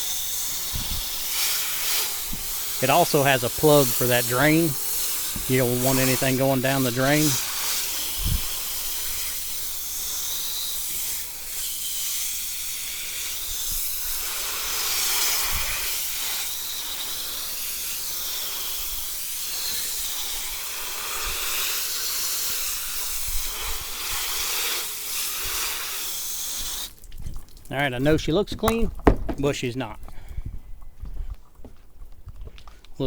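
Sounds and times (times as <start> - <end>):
garden hose spraying water: 0.0 - 29.2.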